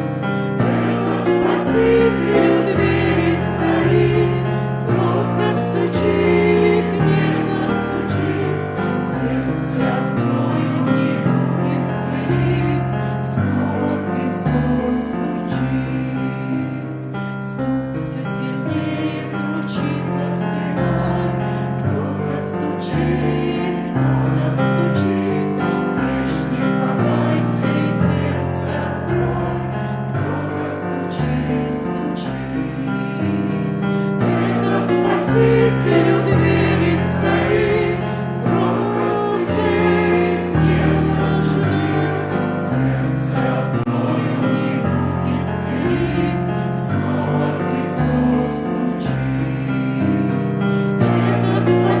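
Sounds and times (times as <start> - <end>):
keyboard chords and bass: 0.0 - 14.9
voices singing a hymn: 0.0 - 52.0.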